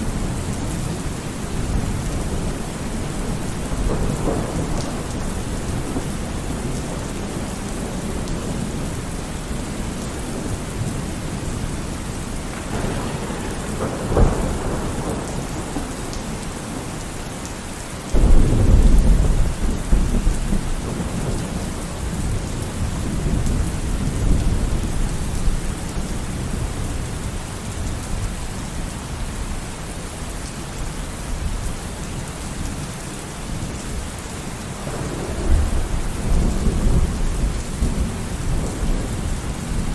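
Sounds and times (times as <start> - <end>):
thunder rumbling and cracking: 0.0 - 28.9, 34.5 - 39.9
heavy rain: 0.0 - 39.9
loud thunderclap: 0.1 - 8.9, 12.4 - 17.0, 18.1 - 25.5, 34.8 - 39.9.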